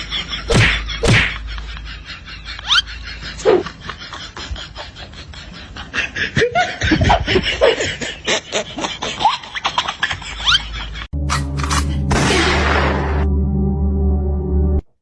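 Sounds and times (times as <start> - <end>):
person laughing: 0.0 - 11.1
music: 11.2 - 14.9.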